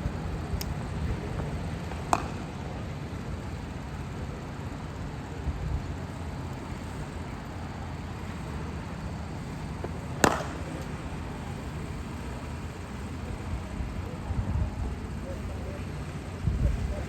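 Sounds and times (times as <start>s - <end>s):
low outdoor rumble: 0.0s - 17.0s
cricket bat striking ball: 1.9s - 2.8s, 9.8s - 11.0s.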